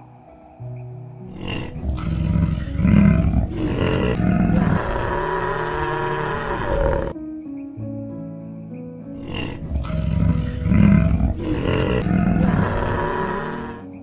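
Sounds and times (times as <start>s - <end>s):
soft background music: 0.0s - 14.0s
large animal roaring: 1.3s - 7.2s, 9.2s - 14.0s.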